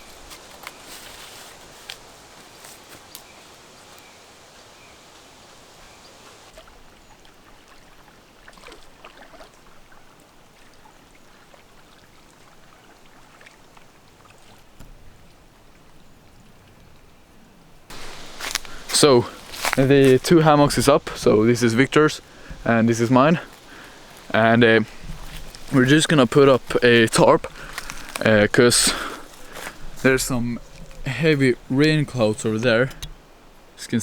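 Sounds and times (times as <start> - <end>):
soft hiss of wind or water: 0.0 - 34.0
small knocks and rustles: 22.4 - 33.2.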